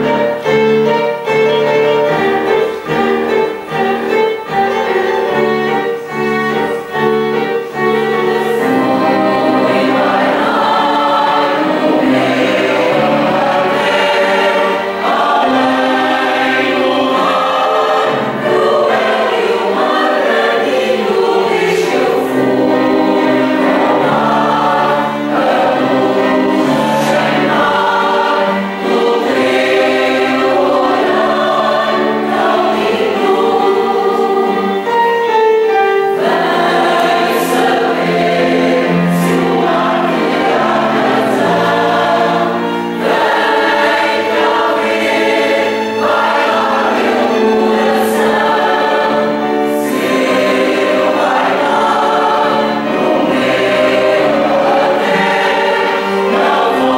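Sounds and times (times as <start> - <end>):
choir singing: 0.0 - 56.9.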